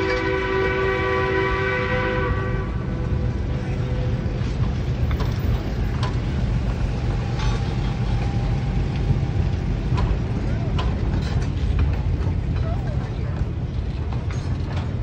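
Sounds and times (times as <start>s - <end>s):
rail joint clicks and knocks: 0.0s - 1.0s, 2.9s - 15.0s
steam locomotive whistle: 0.0s - 3.2s
train wheels rumbling on rail: 0.0s - 15.0s.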